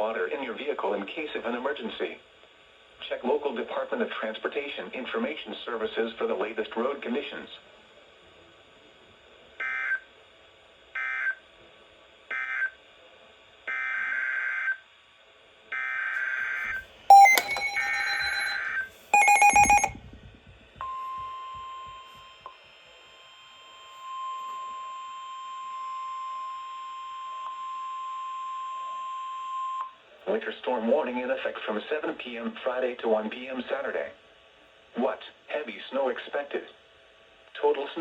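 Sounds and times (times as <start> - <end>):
sharp electronic beeps: 17.1 - 18.6, 19.2 - 19.9
steady alert tone: 17.1 - 18.6, 19.2 - 19.9.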